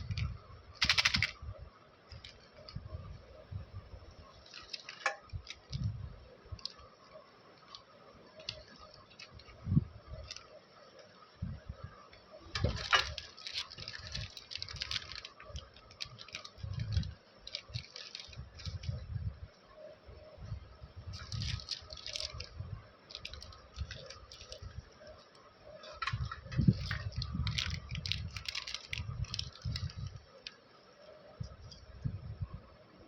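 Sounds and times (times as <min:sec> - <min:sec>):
wrappers clicking and tapping: 0:00.1 - 0:01.4, 0:04.4 - 0:05.8, 0:10.2 - 0:10.5, 0:12.6 - 0:19.0, 0:21.2 - 0:22.5, 0:23.1 - 0:24.7, 0:25.3 - 0:30.6
wrapper crinkling: 0:00.8 - 0:01.4, 0:04.4 - 0:05.9, 0:10.2 - 0:10.6, 0:12.6 - 0:19.0, 0:21.1 - 0:30.5.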